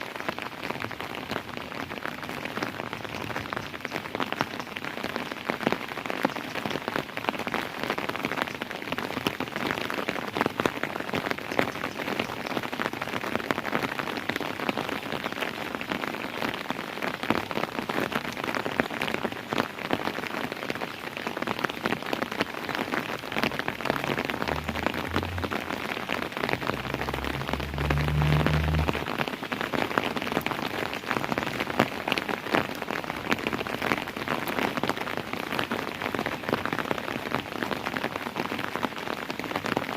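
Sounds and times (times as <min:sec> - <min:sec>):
rain drops pattering: 0:00.0 - 0:39.9
low rumble: 0:23.6 - 0:29.2.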